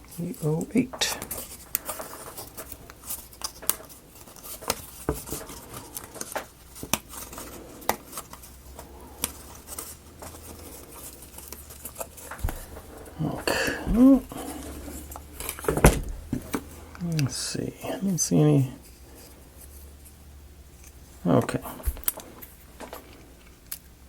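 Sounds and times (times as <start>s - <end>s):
wooden pieces knocking: 11.4s - 17.3s.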